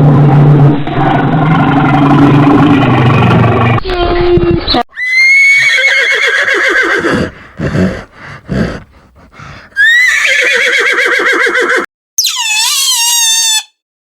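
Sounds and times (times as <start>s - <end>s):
horse neighing: 5.0s - 8.9s, 9.7s - 13.6s
horse breath puffs: 7.0s - 9.8s.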